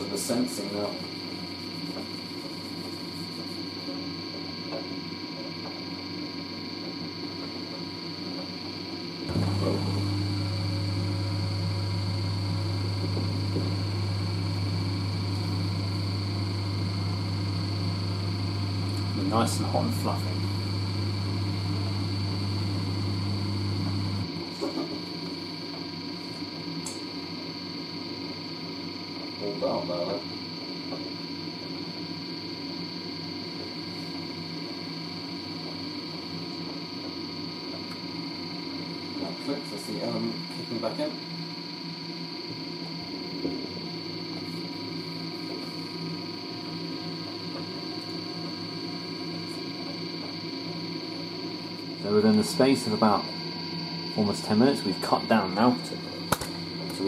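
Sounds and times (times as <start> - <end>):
faint high whine: 0.0 - 57.0
washer dryer low hum: 9.2 - 27.0.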